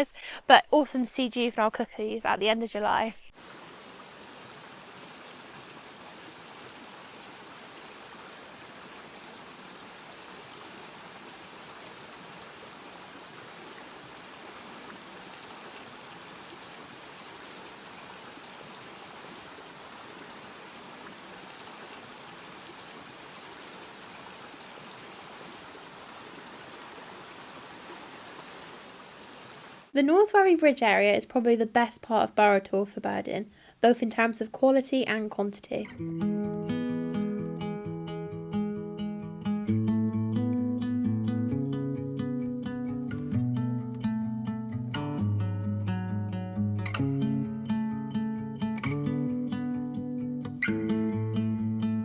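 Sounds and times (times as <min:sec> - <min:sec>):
stream water running over stones: 0:03.4 - 0:29.9.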